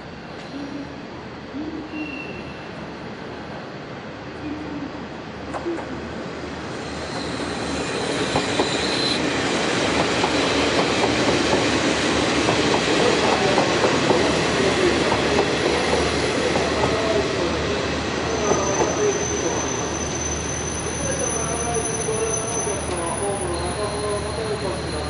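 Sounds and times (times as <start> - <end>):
wheel squeal: 6.8 - 9.2, 18.3 - 24.2.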